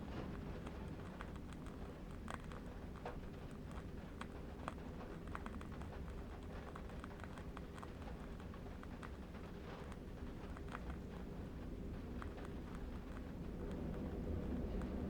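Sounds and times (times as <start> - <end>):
distant wind rumble: 10.9 - 15.0.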